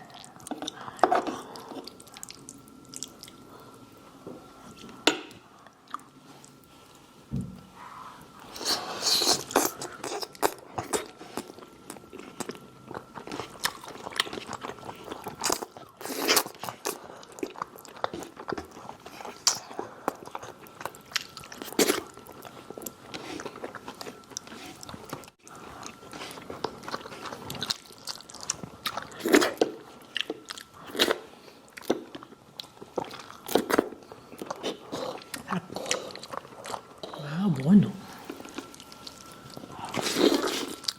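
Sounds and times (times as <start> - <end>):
crunchy chewing of fried chicken: 7.8 - 37.2, 38.0 - 40.9.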